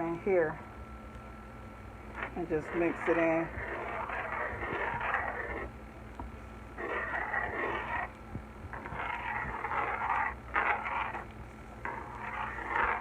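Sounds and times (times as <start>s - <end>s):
utensil scraping frying pan: 2.2s - 5.7s, 6.8s - 8.1s, 8.7s - 13.0s.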